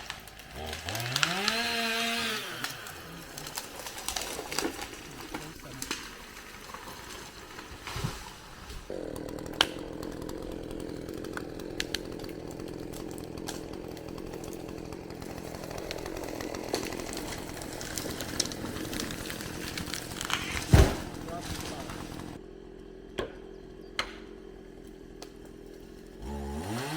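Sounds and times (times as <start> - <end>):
sharp crack: 0.0 - 6.8, 9.4 - 22.4
chainsaw cutting into tree: 0.0 - 22.4, 23.4 - 26.9.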